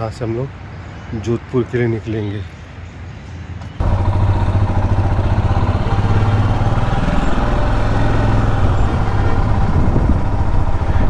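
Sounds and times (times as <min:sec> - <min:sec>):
motorcycle engine idling: 0:03.8 - 0:11.0.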